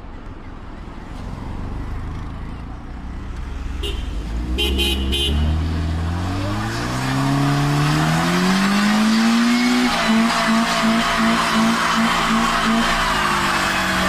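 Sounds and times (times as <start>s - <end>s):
vehicle engine revving: 3.1s - 14.0s.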